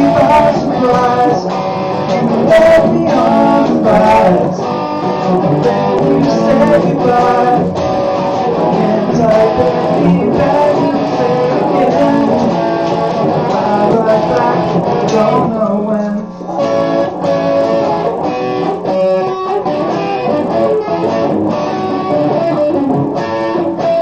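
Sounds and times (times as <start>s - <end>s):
person singing: 0.0s - 17.9s
guitar playing: 0.0s - 24.0s.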